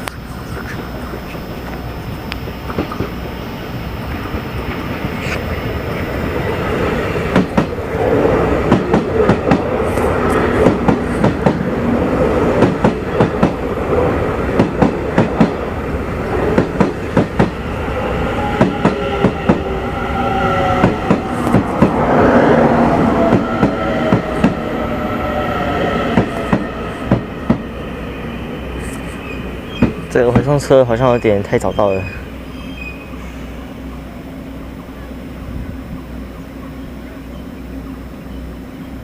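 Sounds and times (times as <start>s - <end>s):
multi-tone whine: 0.0s - 8.6s
train rumble: 0.0s - 39.0s
train wheels clacking over rail joints: 16.5s - 17.6s.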